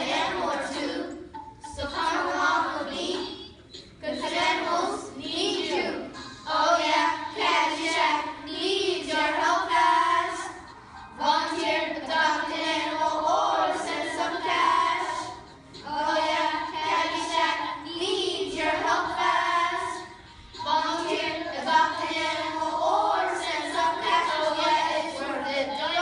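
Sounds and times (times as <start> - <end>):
children singing together: 0.0 - 26.0.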